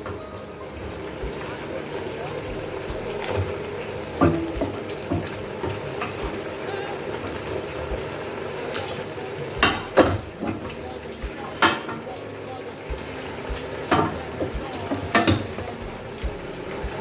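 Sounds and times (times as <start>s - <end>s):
food sizzling in a pot: 0.0s - 17.0s.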